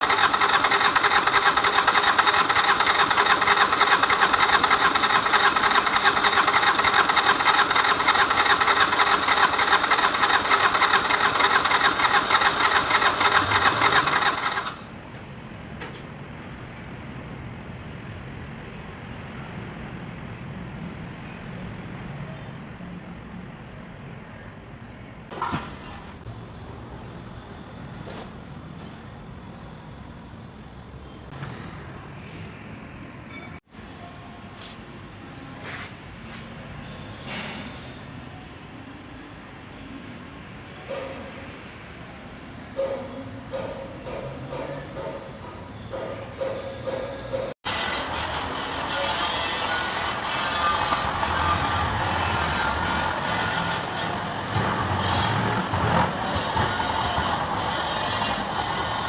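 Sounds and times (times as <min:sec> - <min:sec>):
diesel engine cranking on starter: 0:00.0 - 0:15.0, 0:49.7 - 0:58.7.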